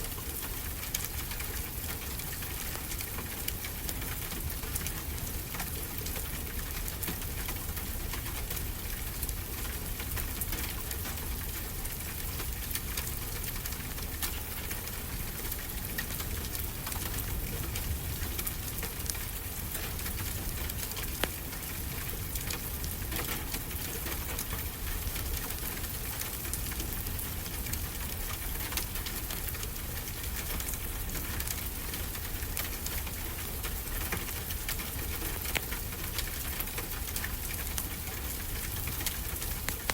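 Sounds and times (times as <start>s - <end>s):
steady rain falling: 0.0s - 39.9s
wood fire crackling: 8.6s - 39.9s.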